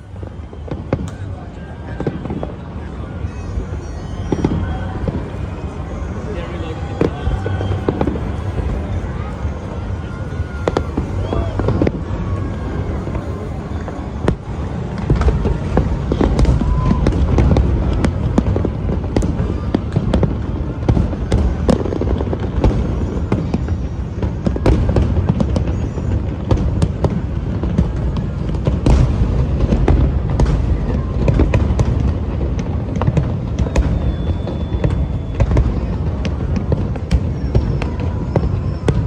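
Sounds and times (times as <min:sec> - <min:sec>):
fireworks bangs and crackles: 0:00.0 - 0:39.0.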